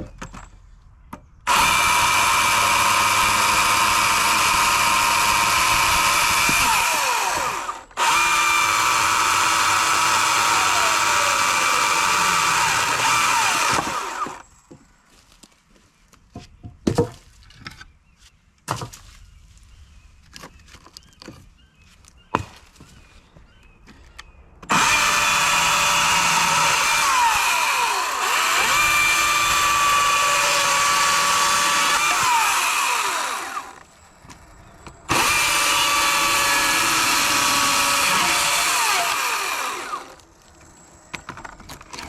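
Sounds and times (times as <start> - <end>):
chainsaw cutting wood: 1.5 - 14.5, 24.6 - 33.9, 35.1 - 40.2.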